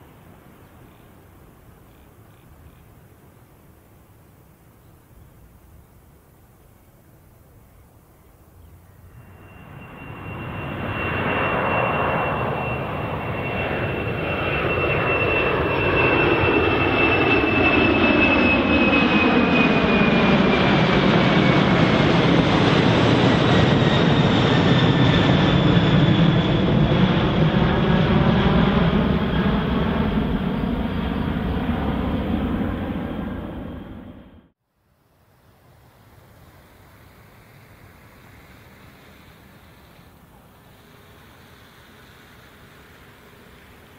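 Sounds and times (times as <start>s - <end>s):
high fan whine: 8.6s - 14.3s
jet airliner engines passing: 8.7s - 34.6s, 36.0s - 43.9s.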